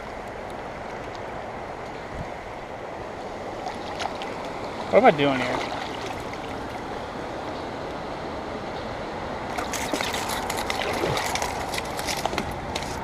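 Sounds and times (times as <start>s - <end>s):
creek water running: 0.0s - 8.6s, 9.4s - 13.0s
sharp splashes and clicks: 3.6s - 4.7s, 9.5s - 13.0s.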